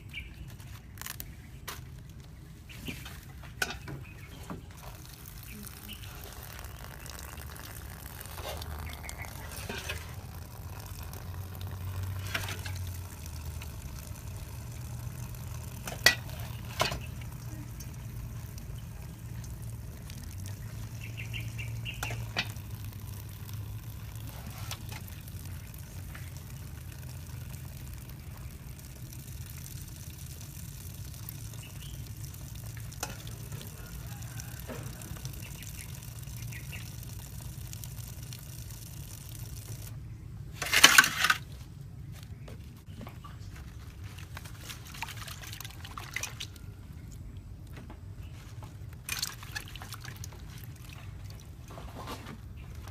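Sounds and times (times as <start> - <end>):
low steady hum: 0.0 - 52.9
water pouring: 2.6 - 41.5, 43.0 - 52.9
rush of water: 32.9 - 36.8.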